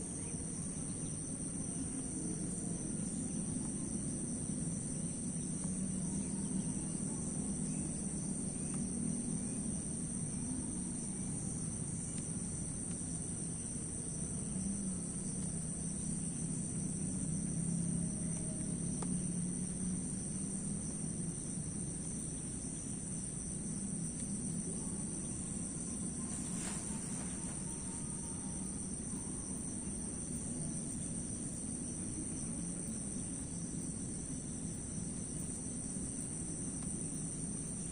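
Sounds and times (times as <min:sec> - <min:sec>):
crickets trilling: 0:00.0 - 0:37.9
low steady rumble: 0:00.0 - 0:37.9.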